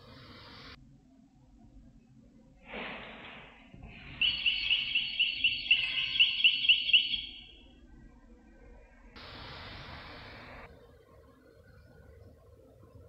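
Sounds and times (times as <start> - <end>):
high bird chirps: 4.0 - 7.7.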